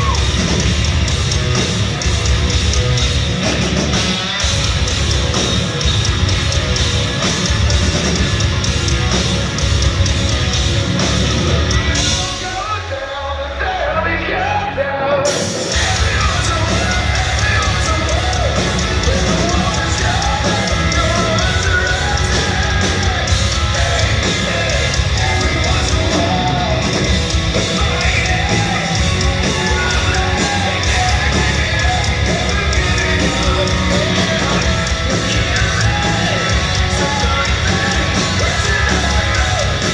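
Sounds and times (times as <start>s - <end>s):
hard rock band playing live: 0.0s - 39.9s
person singing: 12.0s - 39.9s.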